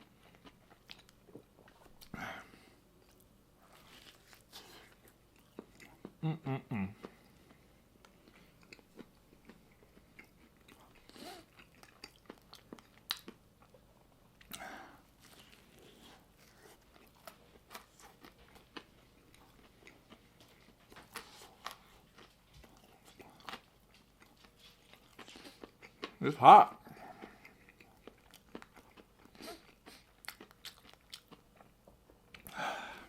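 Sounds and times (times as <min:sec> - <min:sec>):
person chewing crunchy food: 0:00.0 - 0:33.0.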